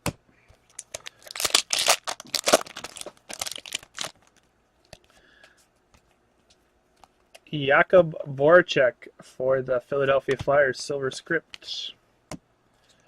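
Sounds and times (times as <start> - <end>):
foil wrapper crinkling and tearing: 0.7 - 4.4.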